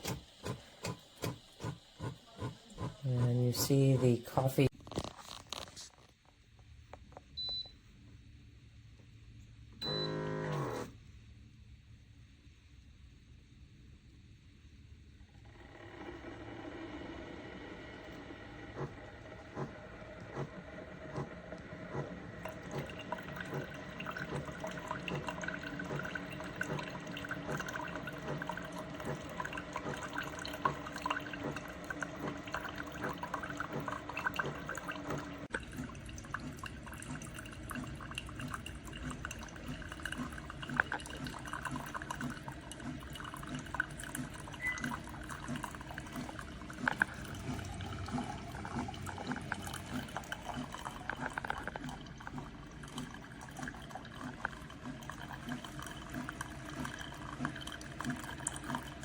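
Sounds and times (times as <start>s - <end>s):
water gurgling in coffee maker: 0.0s - 5.9s, 9.8s - 11.0s, 15.3s - 59.0s
coffee dripping into cup: 22.4s - 59.0s.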